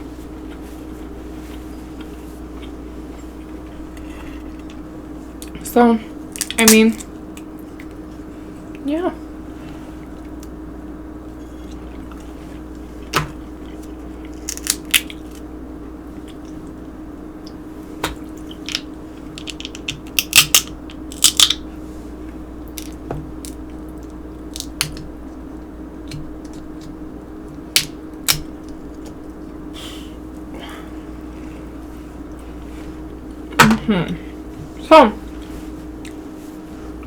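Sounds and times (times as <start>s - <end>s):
chewing: 11.4s - 15.4s, 16.1s - 16.8s
shells cracking: 14.3s - 15.4s, 18.5s - 21.6s, 24.5s - 25.1s, 27.7s - 28.8s.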